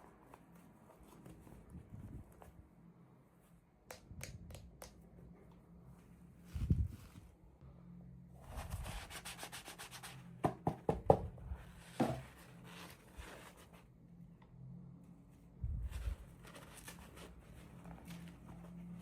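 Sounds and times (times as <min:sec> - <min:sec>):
faint steady hum: 0:00.0 - 0:08.9.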